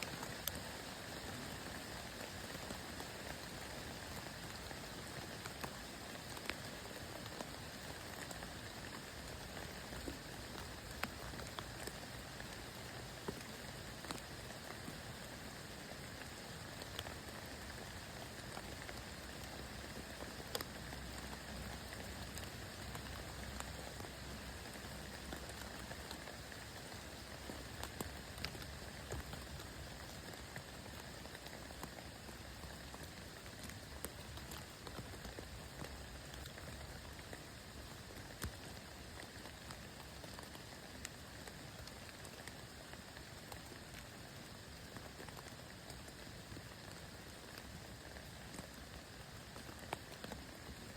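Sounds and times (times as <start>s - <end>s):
rain pattering: 0.0s - 50.9s.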